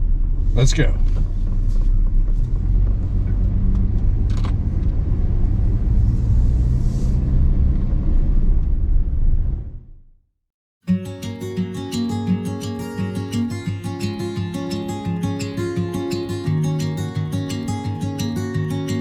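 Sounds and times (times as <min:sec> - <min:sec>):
truck engine and road rumble: 0:00.0 - 0:09.9.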